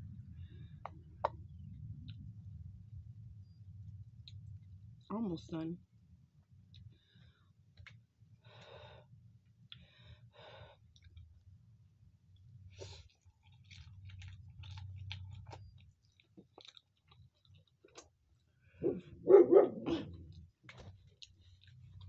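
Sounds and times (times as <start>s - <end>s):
chewing and slurping noodles: 12.7s - 18.6s, 20.3s - 22.0s.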